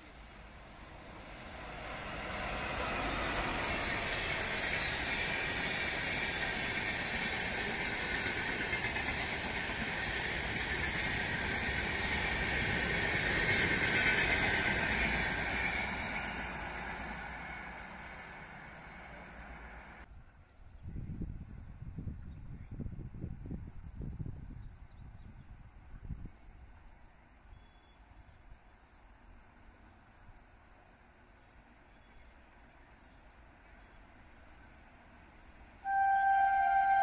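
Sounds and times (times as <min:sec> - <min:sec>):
passenger train passing at speed: 0:00.0 - 0:20.1, 0:29.1 - 0:37.0.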